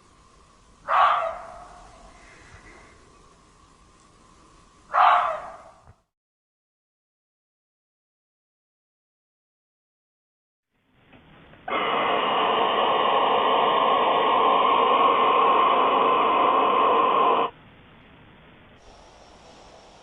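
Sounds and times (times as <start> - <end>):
muffled static hissing: 0.0 - 6.1, 10.8 - 20.0.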